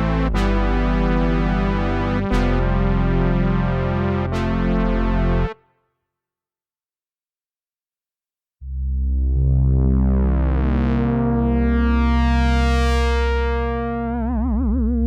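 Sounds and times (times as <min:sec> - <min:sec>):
synthesizer brass chord: 0:00.0 - 0:05.7, 0:08.7 - 0:14.3.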